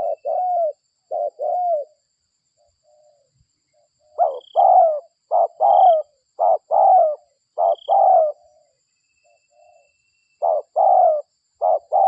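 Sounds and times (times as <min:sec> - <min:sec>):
dove cooing: 0:00.0 - 0:02.0, 0:04.0 - 0:08.8, 0:10.4 - 0:12.0.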